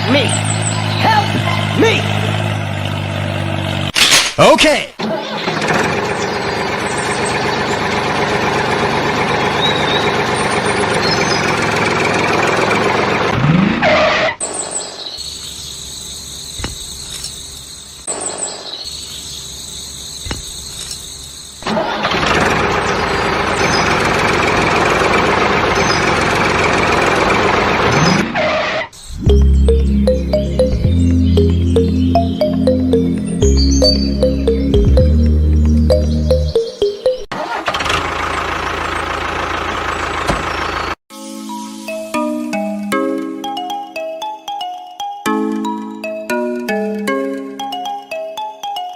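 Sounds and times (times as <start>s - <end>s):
small engine running: 5.1s - 13.8s, 21.6s - 28.2s, 37.4s - 41.0s
engine rising whines: 5.2s - 13.9s, 19.2s - 41.0s.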